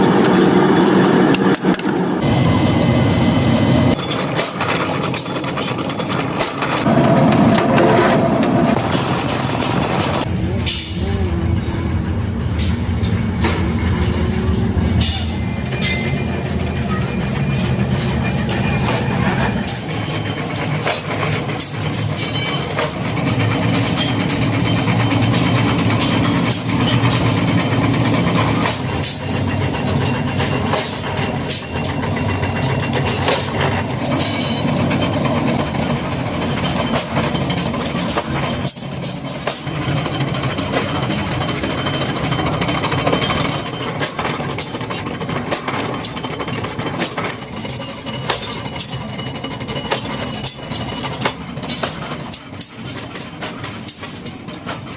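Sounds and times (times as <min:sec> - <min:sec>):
machinery drone: 0:00.0 - 0:52.4
metallic clanks and knocks: 0:17.5 - 0:54.9.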